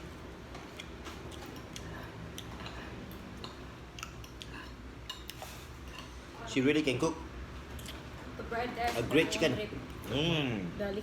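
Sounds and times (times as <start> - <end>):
low background hum: 0.0 - 11.0
wet chewing sounds: 0.5 - 6.1.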